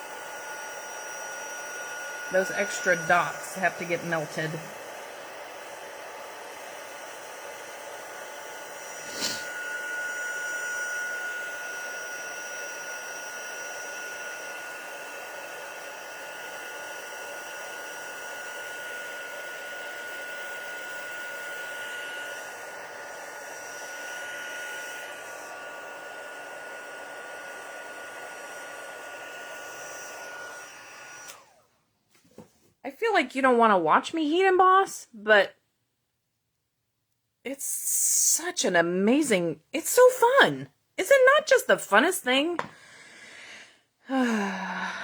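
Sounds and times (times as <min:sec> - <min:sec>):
heat tool blowing with motor whine: 0:00.0 - 0:31.7.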